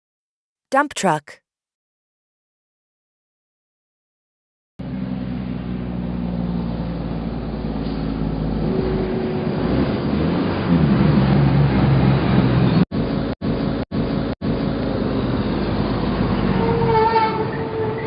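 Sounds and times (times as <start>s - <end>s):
dump truck engine running: 4.8s - 16.7s.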